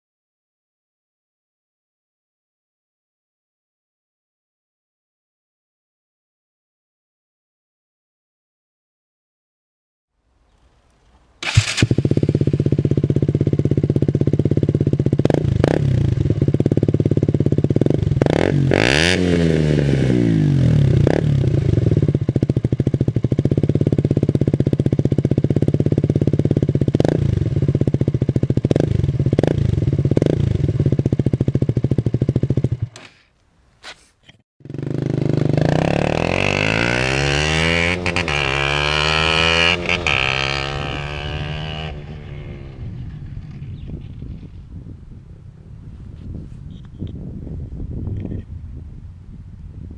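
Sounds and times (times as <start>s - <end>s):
motorcycle engine idling and revving: 11.4s - 33.3s, 34.0s - 48.9s.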